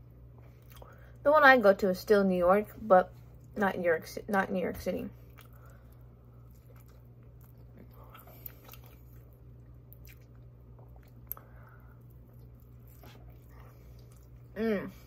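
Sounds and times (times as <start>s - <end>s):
steady low hum: 0.0s - 15.0s
person biting and chewing: 6.4s - 11.5s.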